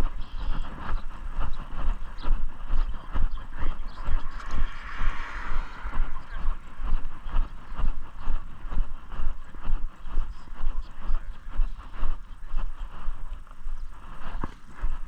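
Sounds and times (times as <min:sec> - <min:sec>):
microphone jostling: 0:00.0 - 0:15.0
brief rushing noise: 0:03.7 - 0:08.0.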